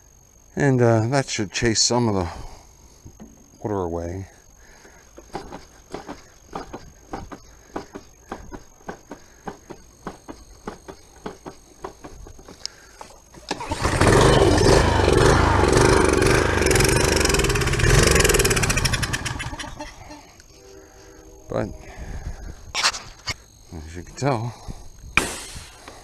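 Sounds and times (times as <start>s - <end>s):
small engine running roughly: 13.5s - 19.9s.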